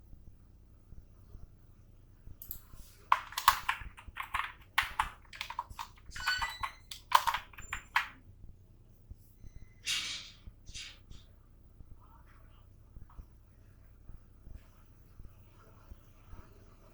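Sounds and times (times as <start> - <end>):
keyboard key clicks: 2.4 - 8.2.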